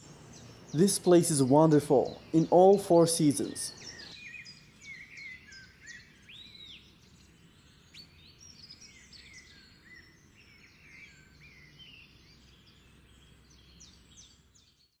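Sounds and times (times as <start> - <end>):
birds chirping: 0.0 - 7.0
faint low background noise: 0.0 - 15.0.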